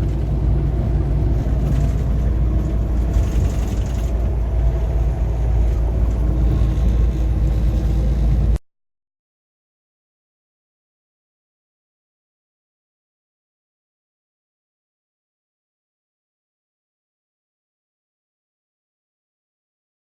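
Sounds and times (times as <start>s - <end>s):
truck engine and tyres rumbling: 0.0s - 8.6s.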